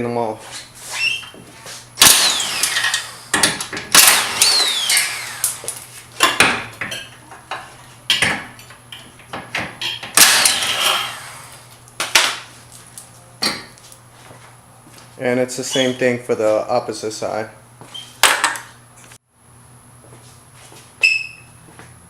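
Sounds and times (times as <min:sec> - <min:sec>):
motor spinning down whine: 0:02.0 - 0:03.4, 0:04.0 - 0:05.8
power tool bursts: 0:02.0 - 0:06.7, 0:10.1 - 0:11.7.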